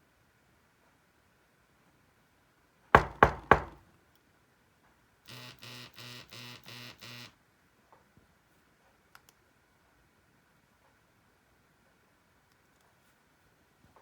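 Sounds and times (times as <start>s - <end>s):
sharp knocks: 3.0s - 3.8s.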